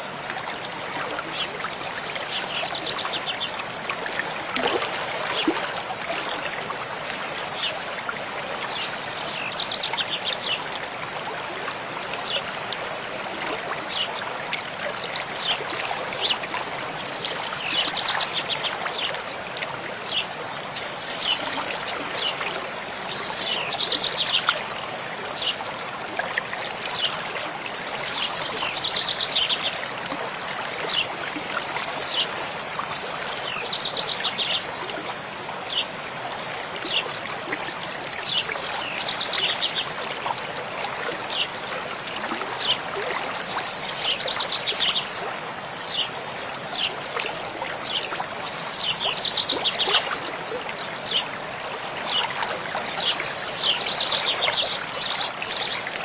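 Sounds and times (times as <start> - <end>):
stream flowing: 0.0 - 56.0
songbirds singing: 1.0 - 3.9, 8.5 - 11.1, 15.2 - 19.4, 20.0 - 25.7, 26.9 - 30.1, 30.9 - 36.0, 37.9 - 40.0, 40.9 - 47.0, 47.7 - 51.4, 52.0 - 56.0.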